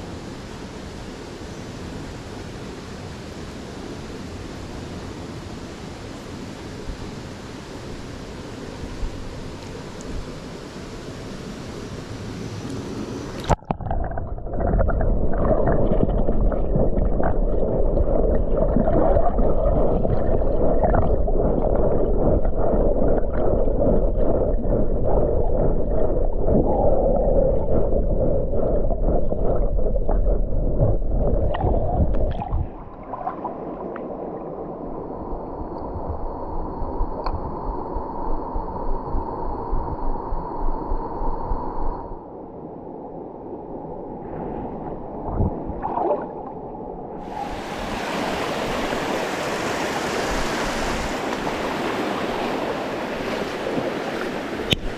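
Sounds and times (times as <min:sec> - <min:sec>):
underwater churning and gurgling: 0:13.4 - 0:42.1, 0:44.2 - 0:54.9
stream water rushing: 0:47.1 - 0:54.9.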